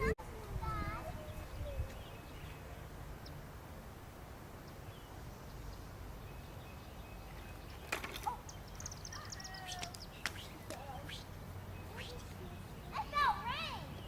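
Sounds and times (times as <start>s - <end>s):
high bird-like chirps: 7.2s - 14.0s.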